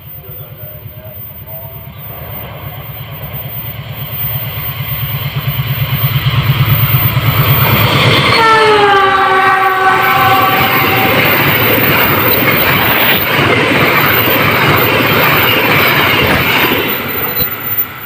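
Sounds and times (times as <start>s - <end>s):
locomotive engine throb: 0.0s - 17.1s
train wheels running: 0.0s - 18.0s
train horn: 8.2s - 12.3s.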